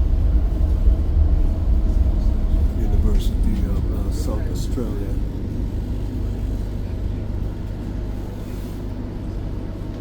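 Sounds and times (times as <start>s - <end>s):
electric tram rumbling: 0.0s - 10.0s.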